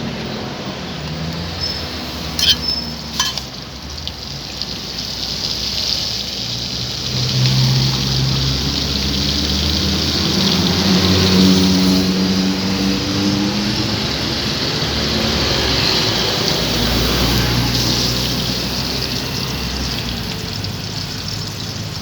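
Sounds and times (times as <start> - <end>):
street traffic: 0.0 - 22.0
sharp metallic clinks: 1.6 - 3.5.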